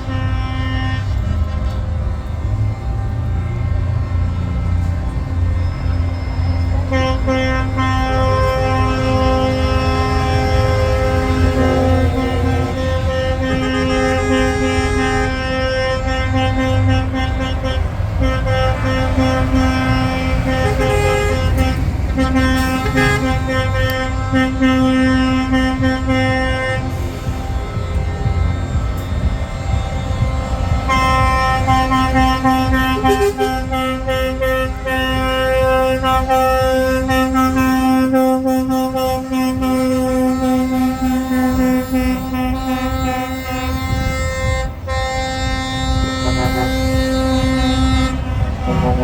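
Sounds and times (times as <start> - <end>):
diesel engines rumbling: 0.0 - 49.0
truck air horns blasting: 0.0 - 49.0.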